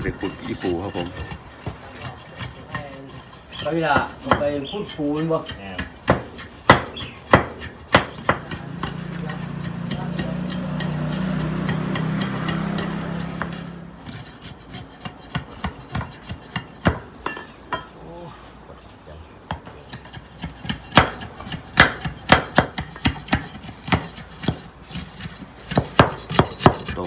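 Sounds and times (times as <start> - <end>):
chopping on wood: 3.9 - 4.5, 5.8 - 13.7, 20.4 - 27.0.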